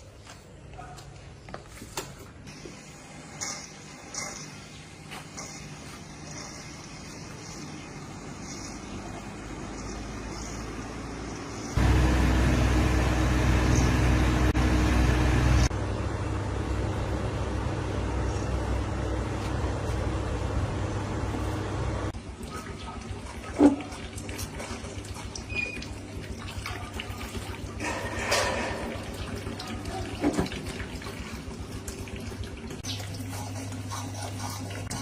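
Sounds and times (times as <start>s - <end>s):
motor humming: 9.3s - 22.1s.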